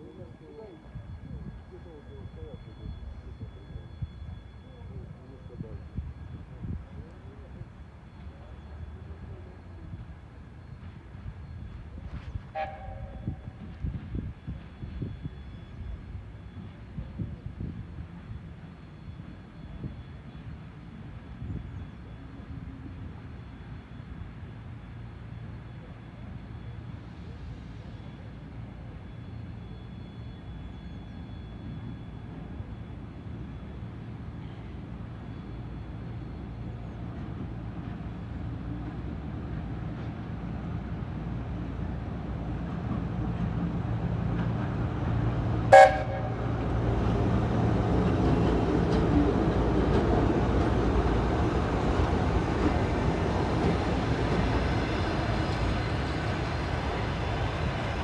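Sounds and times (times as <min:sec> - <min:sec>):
electric locomotive rumble: 0:00.0 - 0:58.0
sharp locomotive whistle blast: 0:12.5 - 0:13.6, 0:45.7 - 0:46.7.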